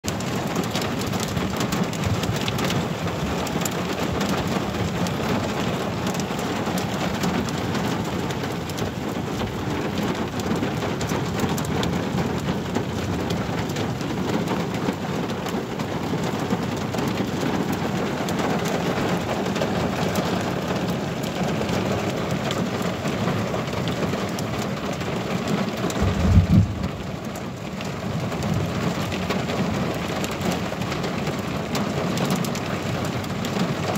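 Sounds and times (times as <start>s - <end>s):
heavy rain on vehicle roof: 0.0s - 33.9s
low thump: 26.0s - 27.1s.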